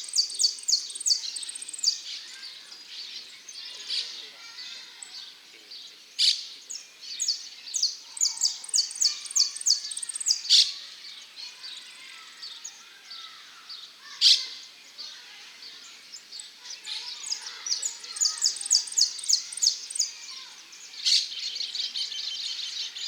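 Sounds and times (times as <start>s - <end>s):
finch singing: 16.8s - 20.3s.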